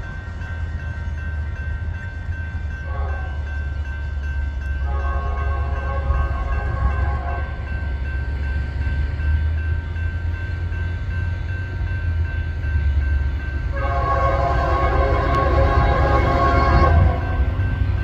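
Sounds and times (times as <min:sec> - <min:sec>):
locomotive engine rumble: 0:00.0 - 0:18.0
locomotive air horn blasts: 0:02.9 - 0:03.4, 0:04.8 - 0:07.7, 0:13.7 - 0:17.6.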